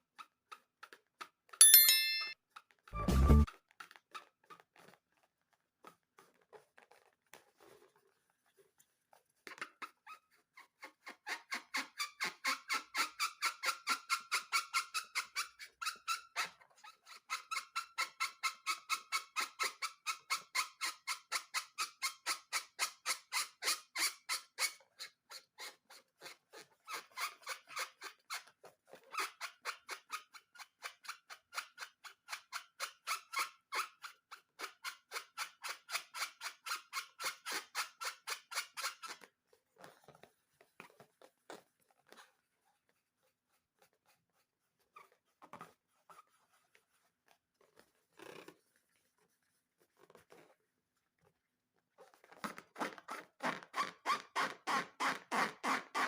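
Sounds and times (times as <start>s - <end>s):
rubber balloon squeaking: 52.0s - 56.0s.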